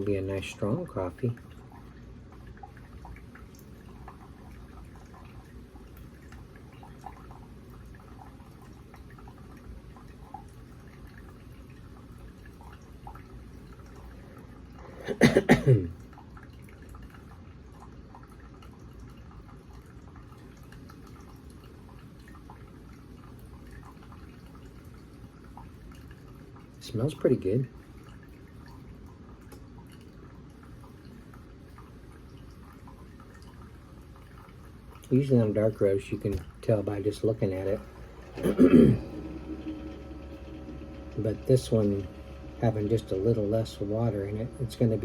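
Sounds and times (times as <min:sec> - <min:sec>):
low steady background noise: 0:00.0 - 0:45.0
coffee brewer dripping: 0:25.5 - 0:45.0.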